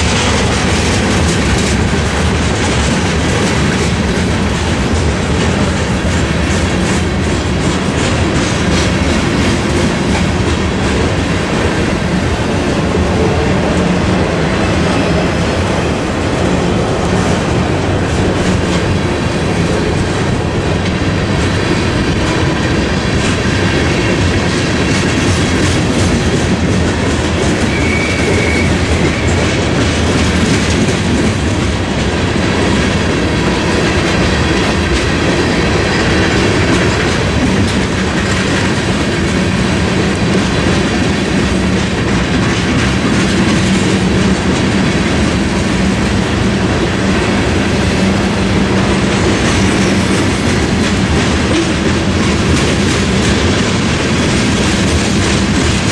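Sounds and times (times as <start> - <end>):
train wheels rumbling on rail: 0.0 - 55.9
high squeal: 27.6 - 29.4.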